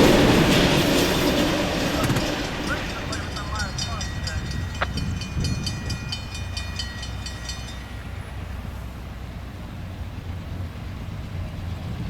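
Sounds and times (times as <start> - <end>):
train rumbling past: 0.0 - 12.0
high pulsing ringing: 0.5 - 9.0.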